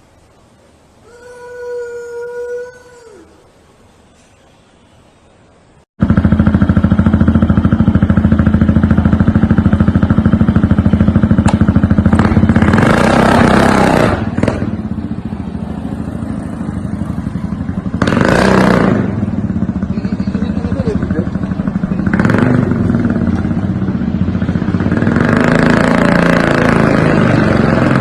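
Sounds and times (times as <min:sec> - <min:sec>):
engine running with rapid beat: 0:06.0 - 0:28.0.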